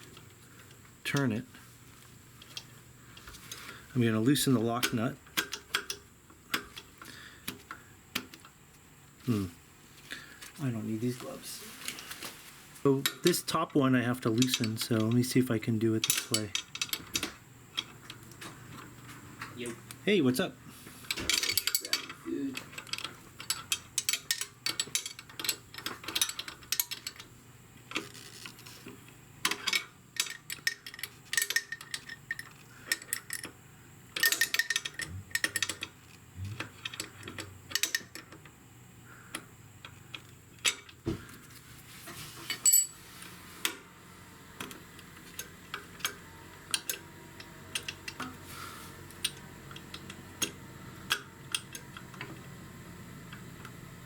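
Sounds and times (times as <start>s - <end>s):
wrenches clicking on metal: 14.2s - 15.4s, 16.0s - 18.2s, 21.1s - 27.3s, 29.4s - 33.5s, 34.2s - 38.5s, 47.7s - 48.4s.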